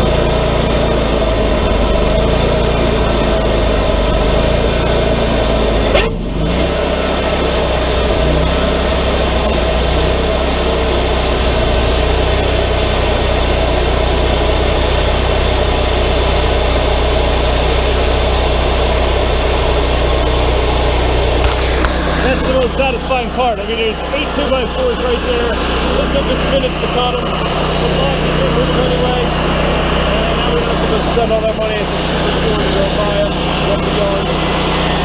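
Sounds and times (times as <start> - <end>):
portable sawmill running: 0.0 - 35.0.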